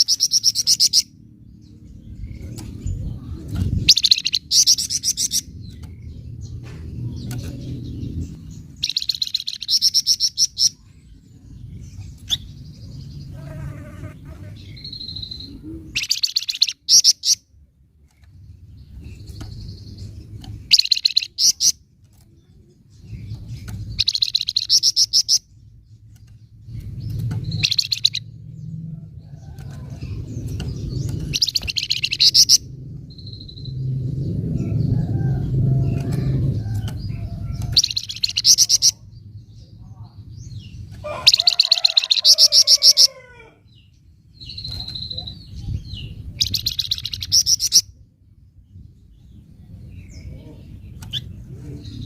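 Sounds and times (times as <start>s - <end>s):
low background rumble: 0.0s - 52.0s
bird chattering call: 37.2s - 39.0s.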